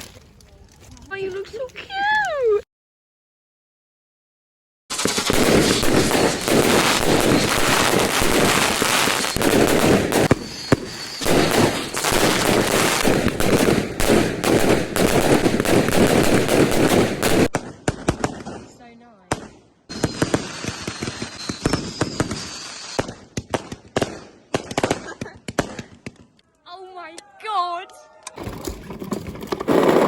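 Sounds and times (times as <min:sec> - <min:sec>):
fireworks crackling bangs: 0:04.9 - 0:26.4.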